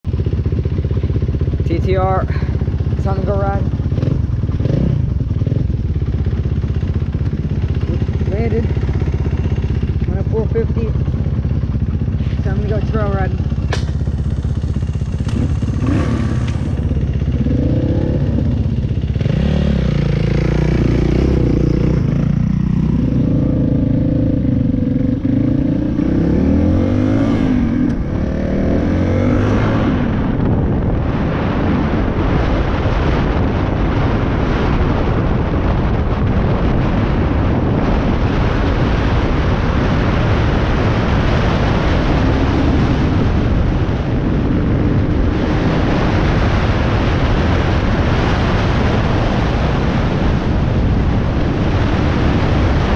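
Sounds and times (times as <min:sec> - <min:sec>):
wind on microphone: 0:00.0 - 0:52.9
dirt bike engine revving: 0:02.0 - 0:30.2.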